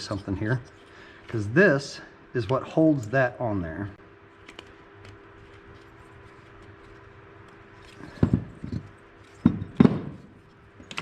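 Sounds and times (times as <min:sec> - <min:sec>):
faint steady hum: 0:00.0 - 0:11.0
tools clattering on workbench: 0:08.0 - 0:10.2.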